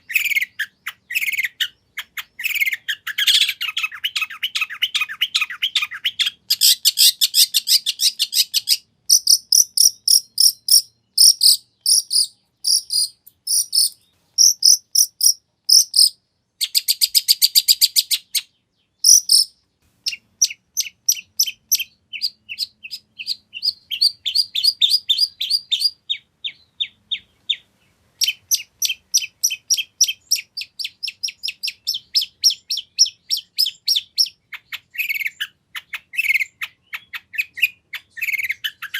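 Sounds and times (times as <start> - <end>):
shrike singing: 2.4 - 18.4, 19.0 - 34.2.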